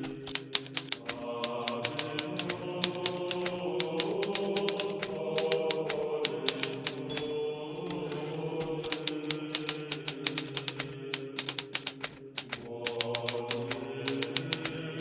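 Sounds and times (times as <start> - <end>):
chant-like music drone: 0.0 - 11.6, 12.7 - 15.0
typewriter keys clicking: 0.0 - 15.0
brief high ringing tone: 7.2 - 7.8.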